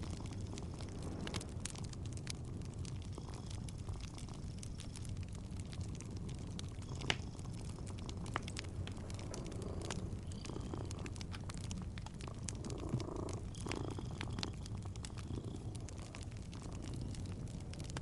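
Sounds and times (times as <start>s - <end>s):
cat purring: 0.0s - 18.0s
wood fire crackling: 0.0s - 18.0s.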